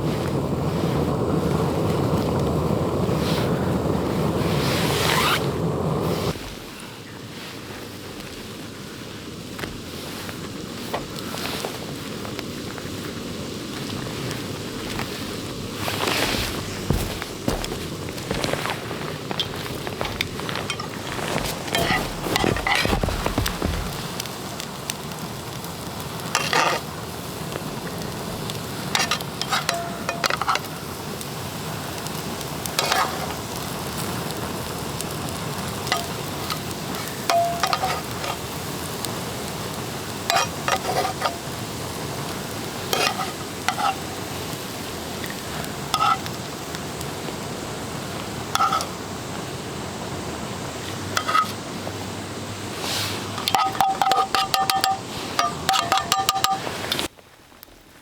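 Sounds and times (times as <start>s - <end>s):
food sizzling in a pan: 0.0s - 57.6s
metal utensil scraping a pan: 20.1s - 23.0s, 26.4s - 26.8s, 29.0s - 30.7s, 32.8s - 33.3s, 37.3s - 38.4s, 40.3s - 41.5s, 42.9s - 44.1s, 46.0s - 46.3s, 48.5s - 48.9s, 51.2s - 51.6s, 52.9s - 57.1s.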